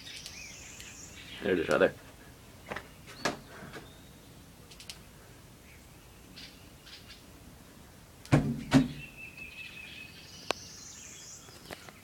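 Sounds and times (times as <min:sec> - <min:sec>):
faint high bird chirps: 0:00.0 - 0:01.6, 0:05.6 - 0:07.3, 0:08.8 - 0:12.0
loud sharp thumps: 0:08.3 - 0:09.1.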